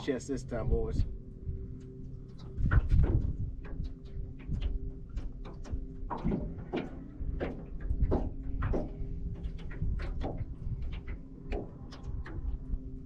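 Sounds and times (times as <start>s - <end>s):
low hum: 0.0s - 13.0s
sharp clicks and knocks: 2.3s - 12.6s.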